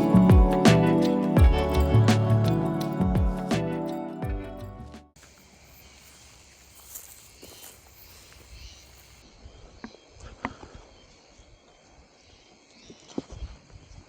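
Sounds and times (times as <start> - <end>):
insects chirping: 5.2 - 14.0.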